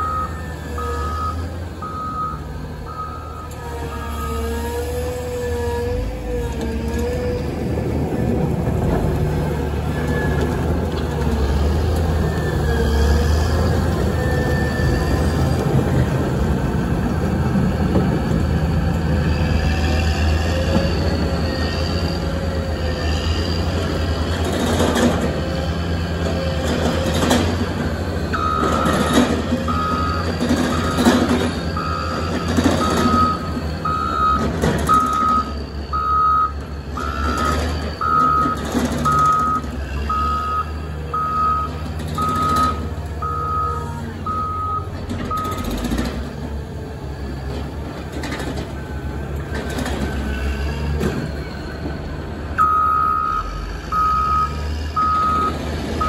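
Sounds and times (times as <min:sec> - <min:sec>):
reversing alarm beeping: 0:00.0 - 0:04.5, 0:13.8 - 0:15.3, 0:28.2 - 0:46.0, 0:52.6 - 0:56.0
diesel engine running: 0:00.0 - 0:56.0.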